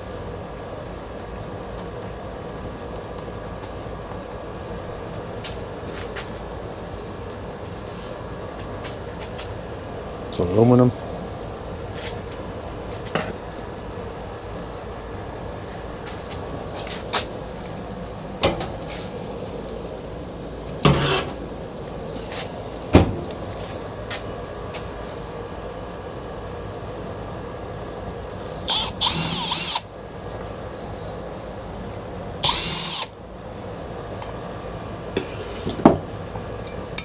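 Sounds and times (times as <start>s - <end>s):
power drill whirring: 28.7s - 29.9s, 32.4s - 33.2s.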